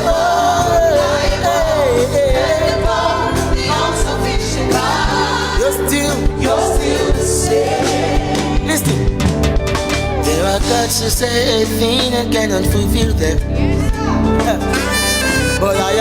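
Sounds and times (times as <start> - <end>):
lead voice singing ornamented line: 0.0 - 9.1
voices singing: 0.0 - 9.2
band accompaniment: 0.0 - 16.0.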